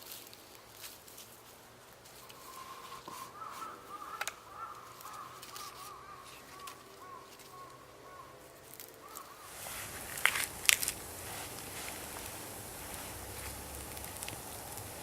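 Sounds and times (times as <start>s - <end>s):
sharp crackles: 8.6s - 15.0s.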